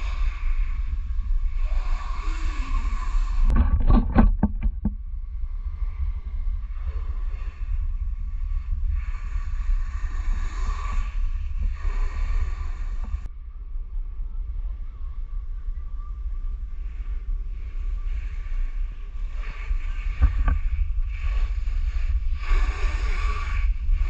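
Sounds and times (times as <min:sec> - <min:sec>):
wind buffeting microphone: 0:00.0 - 0:24.0
rushing hiss: 0:18.6 - 0:24.0.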